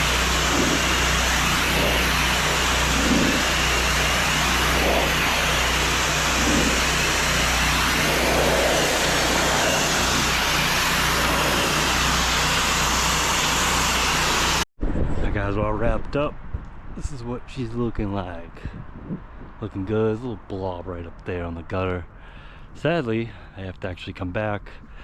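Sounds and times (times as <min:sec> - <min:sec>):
small engine running: 0:00.0 - 0:14.6
water spraying from a wand: 0:00.0 - 0:14.6.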